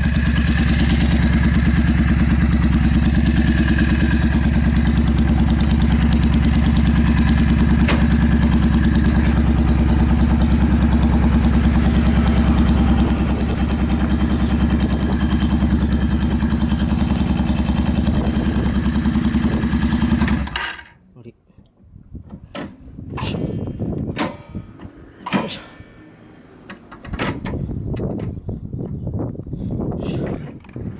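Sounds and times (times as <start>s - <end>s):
motorcycle engine idling: 0.0s - 20.6s, 22.8s - 27.0s.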